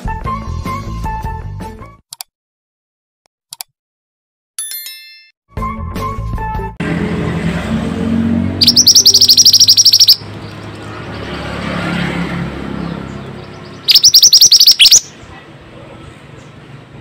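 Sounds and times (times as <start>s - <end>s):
songbird high trill: 8.6s - 10.6s, 13.3s - 15.1s.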